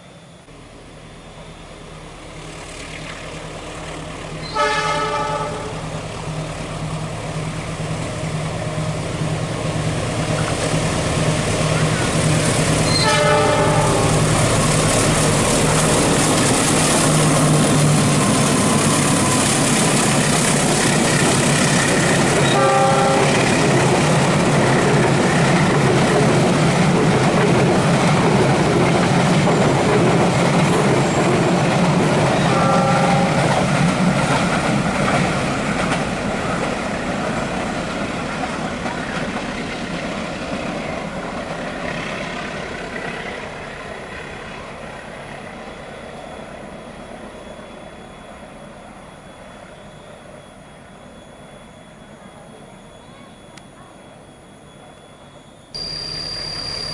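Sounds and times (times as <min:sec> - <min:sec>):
train running on rails: 0:00.0 - 0:56.9
train horn blasts: 0:04.4 - 0:06.0, 0:12.8 - 0:14.4, 0:22.4 - 0:23.7, 0:32.3 - 0:33.6.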